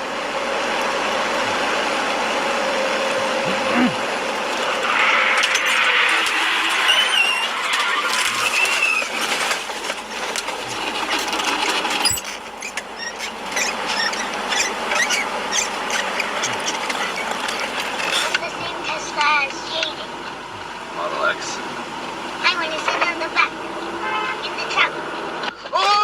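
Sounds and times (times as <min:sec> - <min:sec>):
road noise inside car: 0:00.0 - 0:26.0
tyre or brake squeals: 0:05.4 - 0:09.2, 0:11.9 - 0:18.3.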